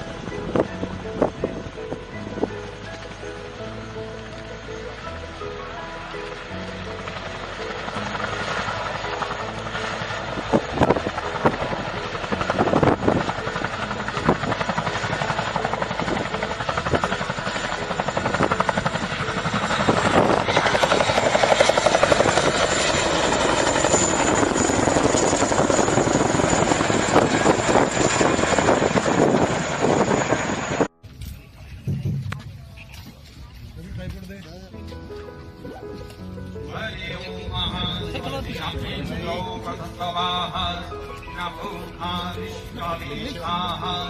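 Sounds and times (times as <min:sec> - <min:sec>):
turbine whine: 0:00.0 - 0:33.4
helicopter running: 0:00.0 - 0:34.7, 0:35.4 - 0:44.0.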